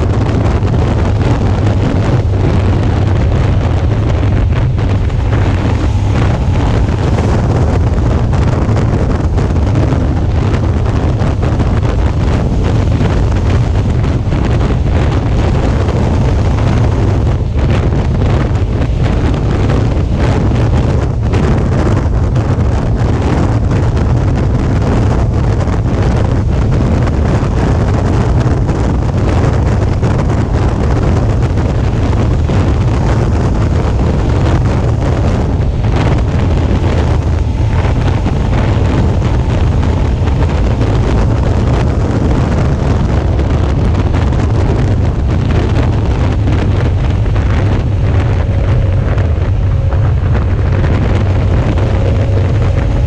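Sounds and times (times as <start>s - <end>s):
motorcycle engine rumbling: 0.0s - 53.0s
wind rushing over microphone: 0.0s - 53.0s
faint thin whine: 0.9s - 23.7s.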